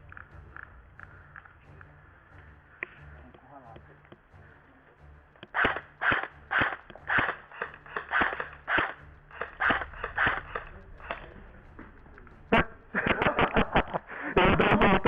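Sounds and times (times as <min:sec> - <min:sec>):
airsoft guns firing single shots: 0:05.6 - 0:10.6.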